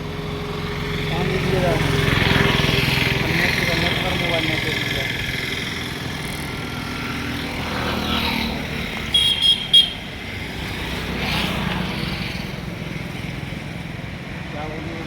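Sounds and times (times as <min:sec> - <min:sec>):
tractor diesel engine running: 0:00.0 - 0:07.8.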